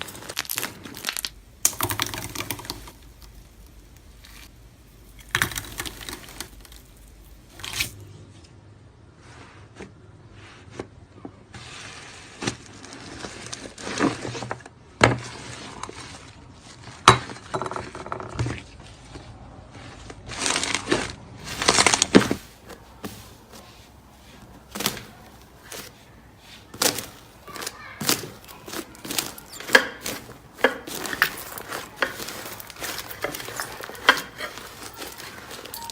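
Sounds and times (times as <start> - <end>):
slime crackling and popping: 0.0 - 8.0.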